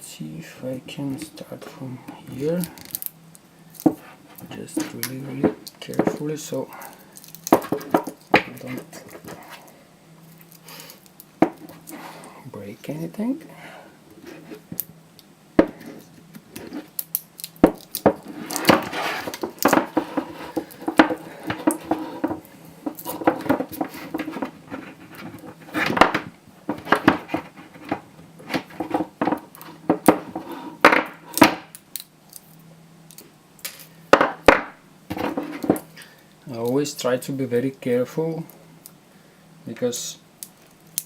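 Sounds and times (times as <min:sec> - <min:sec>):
plastic scraping and creaking: 0:03.9 - 0:09.7, 0:17.6 - 0:31.2, 0:35.1 - 0:35.9.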